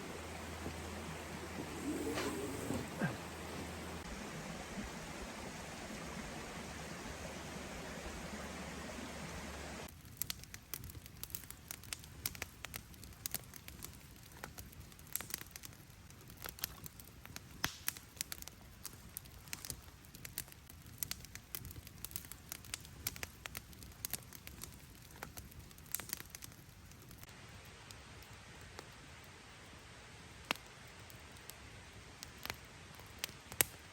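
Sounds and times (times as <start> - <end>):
campfire crackling: 0.0 - 33.9
low hiss of fire: 0.0 - 33.9.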